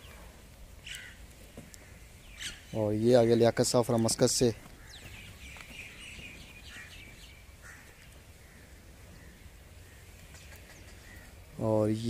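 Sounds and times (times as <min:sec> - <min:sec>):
quick high bird calls: 0:00.0 - 0:02.8, 0:04.7 - 0:11.4
faint birds chirping: 0:00.0 - 0:12.0
outdoor background noise: 0:00.0 - 0:12.0.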